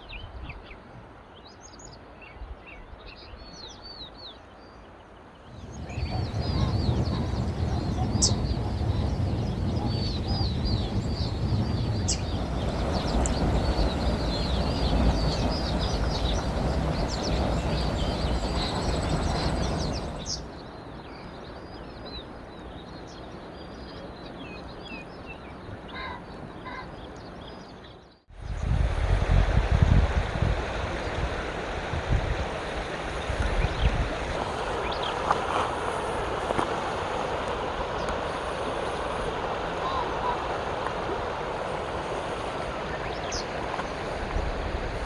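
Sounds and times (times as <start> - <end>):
loud low rumbling: 5.5 - 20.5
small birds chirping: 5.5 - 20.6.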